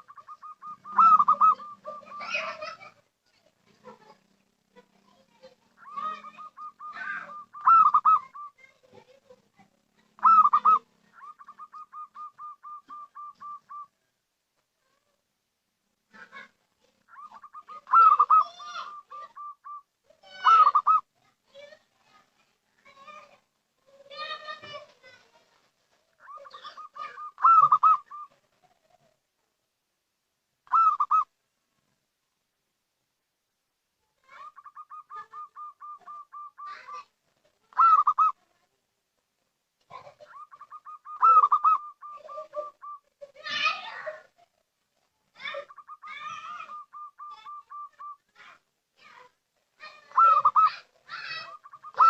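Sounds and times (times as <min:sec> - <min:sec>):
dove cooing: 0:00.0 - 0:02.9, 0:05.8 - 0:08.8, 0:10.2 - 0:13.9, 0:17.1 - 0:21.0, 0:26.2 - 0:29.0, 0:30.7 - 0:31.3, 0:34.3 - 0:37.0, 0:37.7 - 0:38.4, 0:39.9 - 0:43.1, 0:45.4 - 0:48.3, 0:50.0 - 0:52.0.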